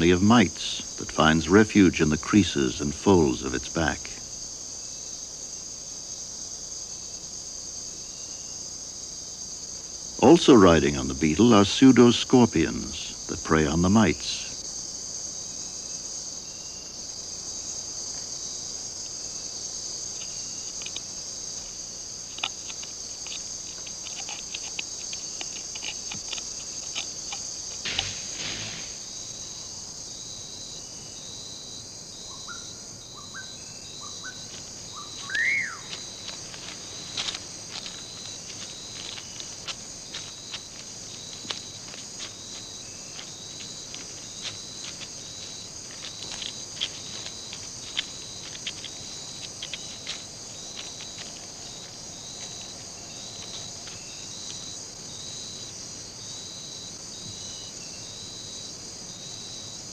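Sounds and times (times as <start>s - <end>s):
insect chorus buzzing: 0.0s - 59.9s
rising chirps: 27.9s - 29.7s, 33.4s - 37.2s.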